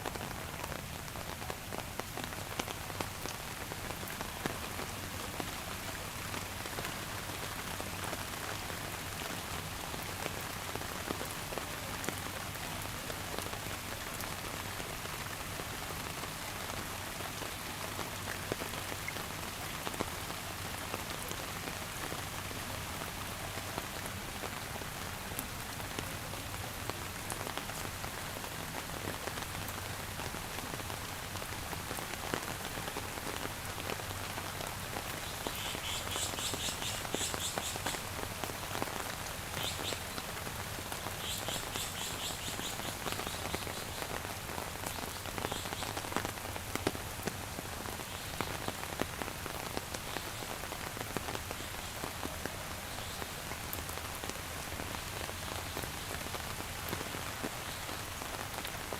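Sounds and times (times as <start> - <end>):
rain falling: 0.0 - 58.9.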